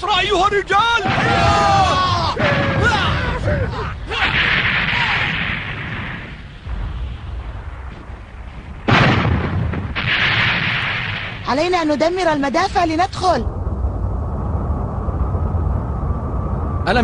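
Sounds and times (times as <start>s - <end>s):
cartoon cannon fire: 1.0s - 3.4s, 4.1s - 6.8s, 8.8s - 11.6s
loud blast: 1.0s - 11.6s
explosions: 1.0s - 12.3s.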